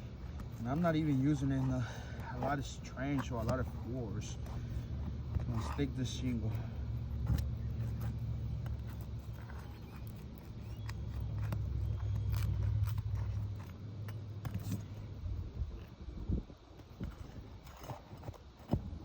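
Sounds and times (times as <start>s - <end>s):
shingle clicking and scraping: 0.0s - 15.1s.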